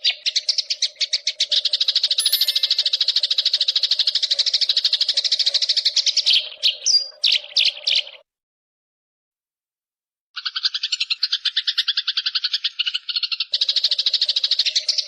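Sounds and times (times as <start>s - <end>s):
songbird high chirps: 2.2s - 3.0s.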